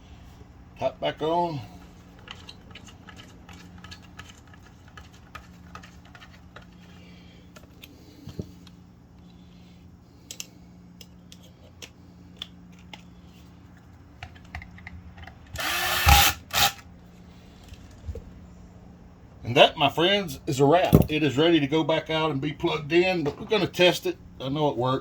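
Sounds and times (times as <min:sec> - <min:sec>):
power drill driving screw: 0:15.6 - 0:16.8.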